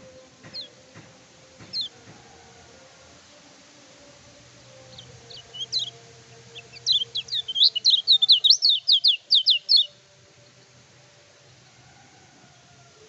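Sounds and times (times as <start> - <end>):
bird singing sharp sweeping notes: 0.0 - 2.0, 4.4 - 10.8.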